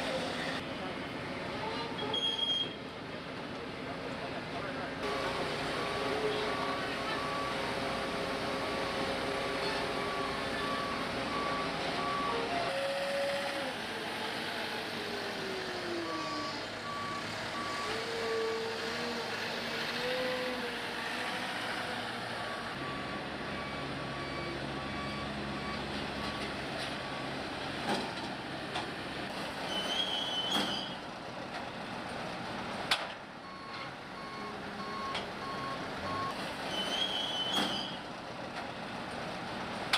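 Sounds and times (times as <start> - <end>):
engine noise: 0.0 - 39.9
reversing alarm beeping: 5.7 - 7.6, 9.9 - 12.5, 16.0 - 18.1, 22.4 - 26.4, 33.4 - 36.4.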